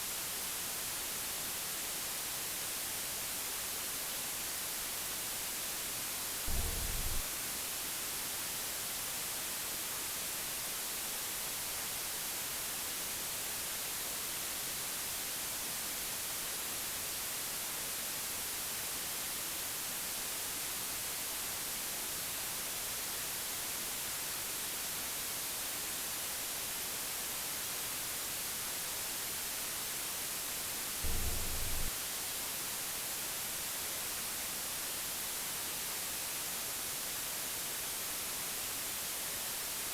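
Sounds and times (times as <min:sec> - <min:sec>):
white noise hiss: 0:00.0 - 0:07.7, 0:08.6 - 0:39.9
low thumps: 0:06.5 - 0:07.2, 0:31.0 - 0:31.9.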